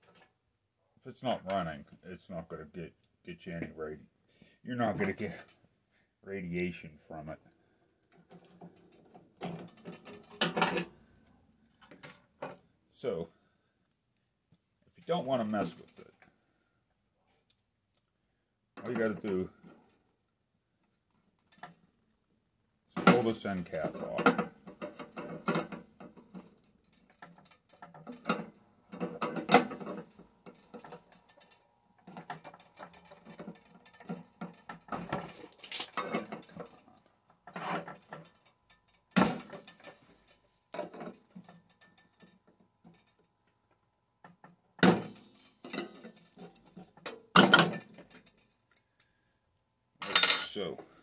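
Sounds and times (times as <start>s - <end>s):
metal parts clicking and scraping: 8.3s - 10.9s, 23.1s - 43.3s, 44.8s - 49.1s.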